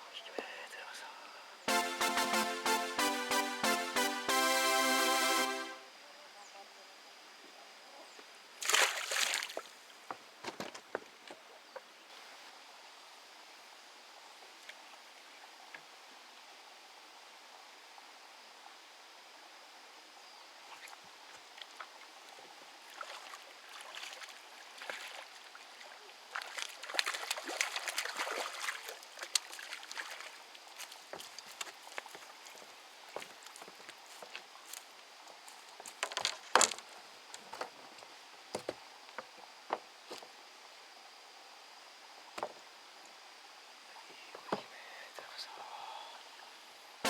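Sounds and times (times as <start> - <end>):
water splashing: 8.6 - 9.7, 22.9 - 31.4
small water drips: 20.8 - 34.8.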